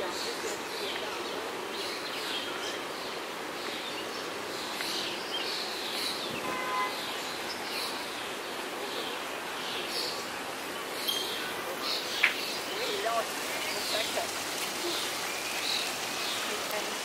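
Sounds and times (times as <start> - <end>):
steady background hiss: 0.0 - 17.0
bird chirping: 9.0 - 14.2.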